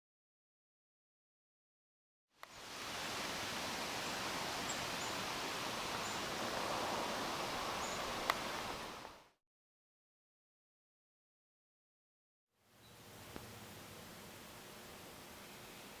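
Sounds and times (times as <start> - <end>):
rustling outdoor hiss: 2.4 - 9.4, 12.6 - 16.0.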